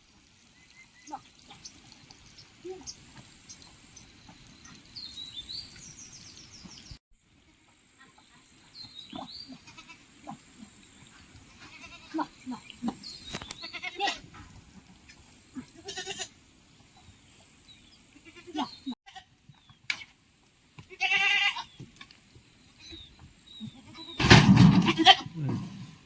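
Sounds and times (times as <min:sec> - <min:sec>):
goats bleating: 0:09.2 - 0:10.4, 0:11.5 - 0:12.7, 0:13.6 - 0:14.3, 0:15.6 - 0:16.4, 0:20.9 - 0:21.7, 0:23.6 - 0:25.7.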